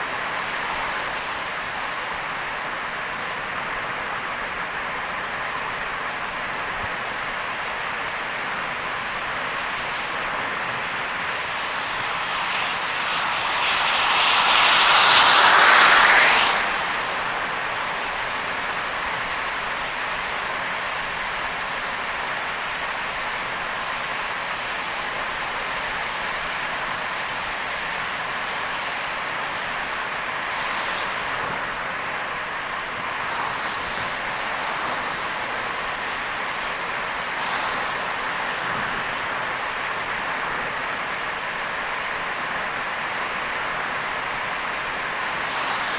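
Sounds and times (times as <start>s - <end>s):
spray-like rush: 0.0s - 3.9s, 6.0s - 45.9s
tyres on wet road in rain: 0.0s - 45.9s
brief hisses: 10.8s - 18.7s, 45.2s - 45.9s.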